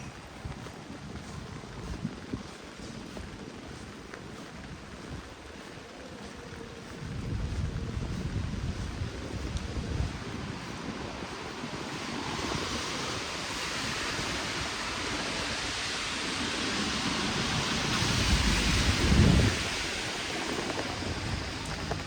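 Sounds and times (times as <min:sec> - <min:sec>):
heavy rain: 0:07.2 - 0:22.0.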